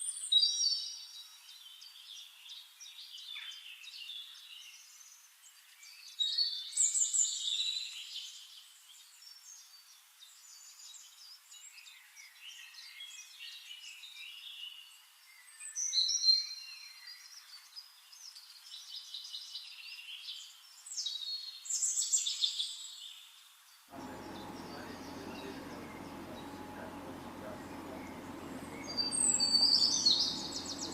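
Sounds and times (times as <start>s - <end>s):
songbirds singing: 24.0s - 30.9s
steady low noise: 24.0s - 30.9s.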